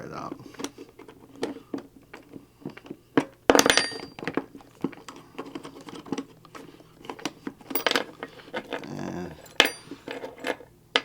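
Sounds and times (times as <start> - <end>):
small metal parts clicking: 0.6 - 11.0
ringing metallic clatter: 3.6 - 4.3, 9.4 - 10.0.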